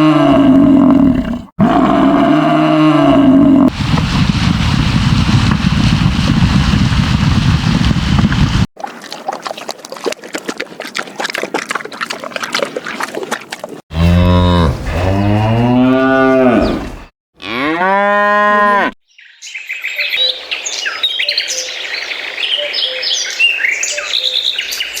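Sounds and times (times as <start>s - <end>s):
cow mooing: 0.0s - 3.7s, 13.9s - 19.0s.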